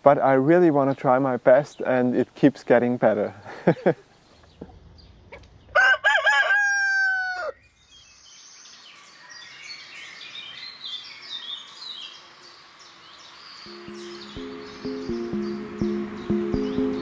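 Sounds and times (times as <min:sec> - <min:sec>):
small birds chirping faintly: 0:00.0 - 0:05.8, 0:07.6 - 0:17.0
rooster crowing: 0:05.8 - 0:07.6.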